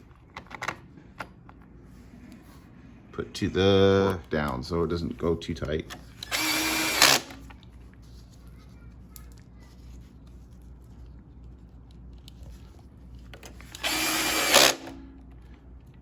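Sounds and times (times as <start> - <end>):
cordless drill driving fastener: 6.2 - 7.4, 13.7 - 15.0.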